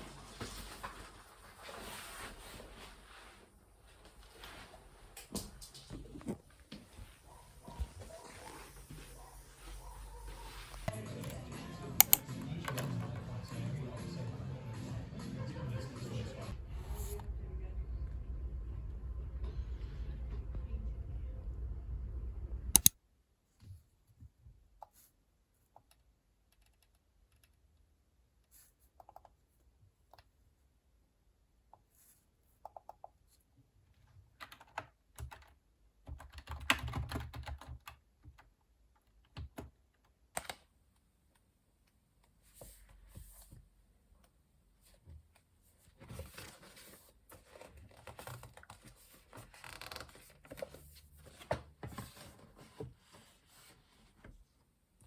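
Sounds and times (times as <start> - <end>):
sharp click: 12.0 - 12.2
typing on a computer keyboard: 12.0 - 12.8, 34.4 - 38.5
steady low hum: 16.5 - 22.8.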